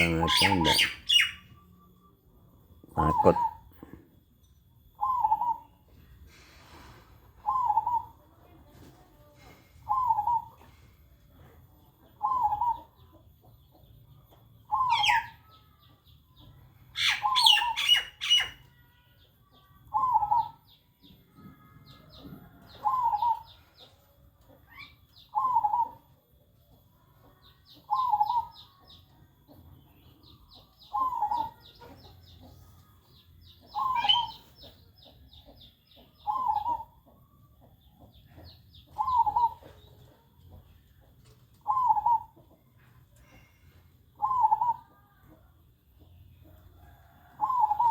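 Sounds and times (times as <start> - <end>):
small birds chirping: 0.0 - 1.6, 21.9 - 47.9
dove cooing: 12.2 - 13.0, 22.8 - 23.6, 25.3 - 26.1, 27.9 - 28.6, 30.9 - 31.8, 33.7 - 34.5, 36.2 - 37.0, 38.9 - 39.8, 41.2 - 42.6, 44.2 - 45.0, 46.8 - 47.9.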